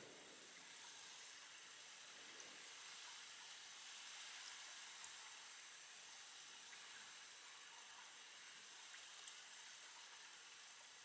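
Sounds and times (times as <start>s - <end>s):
faint steady rain hiss: 0.0s - 11.0s
tiny drip ticks: 8.9s - 9.4s.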